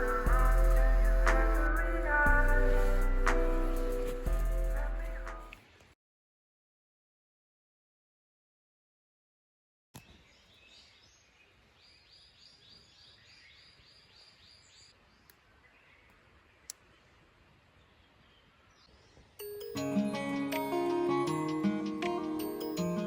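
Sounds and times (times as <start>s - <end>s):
background music: 0.0s - 5.6s, 19.4s - 23.0s
faint outdoor ambience: 0.0s - 6.0s, 10.0s - 23.0s.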